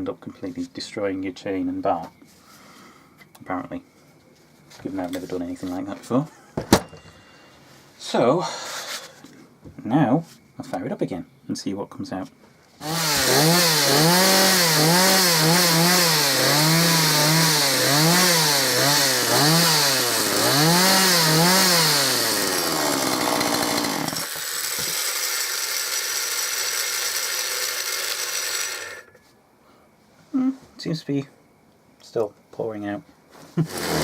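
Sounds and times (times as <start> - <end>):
chainsaw revving: 12.8 - 29.1, 33.6 - 34.0.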